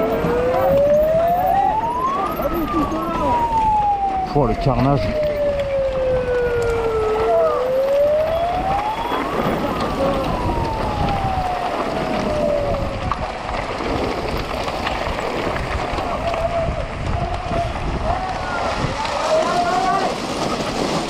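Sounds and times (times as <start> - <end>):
siren wailing: 0.0 - 13.6.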